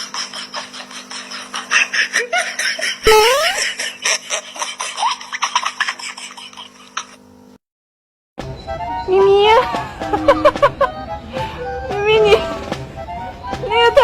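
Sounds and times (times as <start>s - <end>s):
laughter in bursts: 0.0s - 7.2s, 10.0s - 11.0s.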